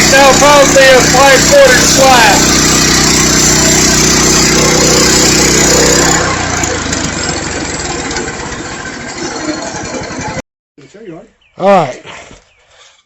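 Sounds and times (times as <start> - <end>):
sawmill engine sawing log: 0.0 - 10.4.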